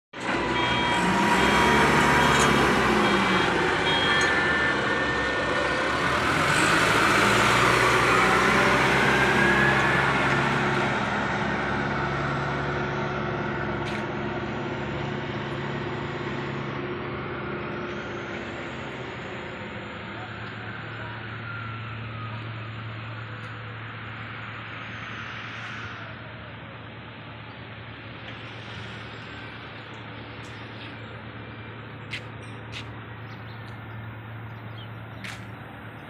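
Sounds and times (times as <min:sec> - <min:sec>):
road and traffic noise: 0:00.1 - 0:36.0
heavy truck engine drone: 0:00.2 - 0:36.0.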